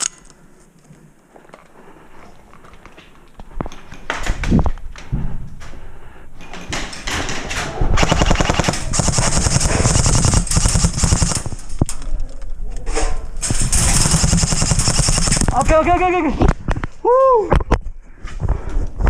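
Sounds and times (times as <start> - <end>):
airsoft guns firing: 8.0 - 11.6, 13.5 - 15.8.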